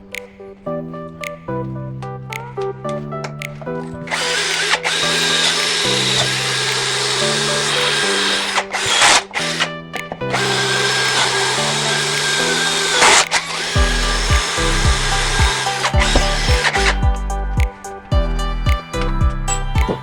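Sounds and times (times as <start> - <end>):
background music: 0.0 - 20.0
electric drill driving screws: 4.1 - 9.7, 10.4 - 16.9.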